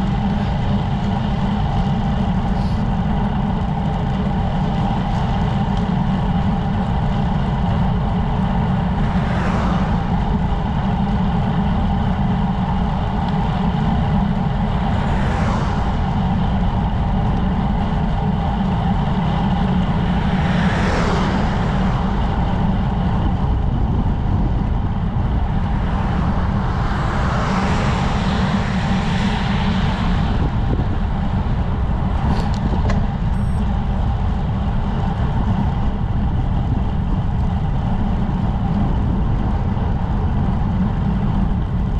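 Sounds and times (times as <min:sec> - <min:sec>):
wind and road rumble: 0:00.0 - 0:41.9
whooshing swells: 0:08.7 - 0:10.8, 0:14.4 - 0:17.2, 0:19.0 - 0:33.5.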